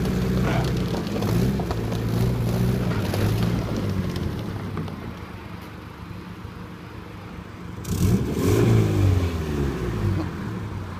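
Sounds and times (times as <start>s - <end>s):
car engine revving: 7.8s - 10.9s.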